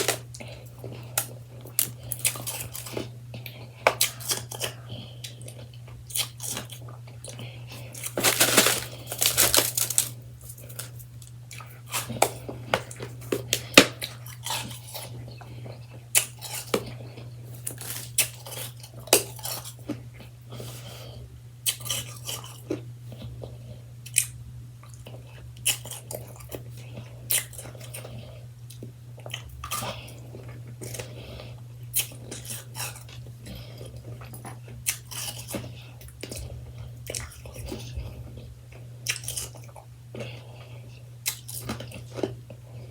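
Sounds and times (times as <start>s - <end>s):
steady low hum: 0.0s - 14.4s
person chewing shaved ice: 0.0s - 21.0s, 21.6s - 42.9s.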